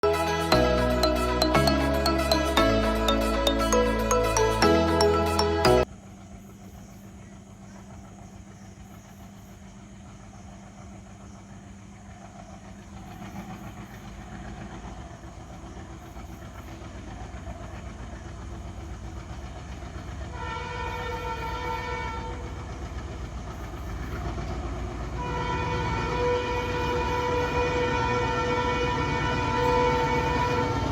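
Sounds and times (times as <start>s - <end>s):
locomotive horn chord: 0.0s - 5.8s, 20.3s - 22.5s, 25.2s - 30.9s
music: 0.0s - 5.8s
diesel locomotive engine rumbling: 9.7s - 30.9s.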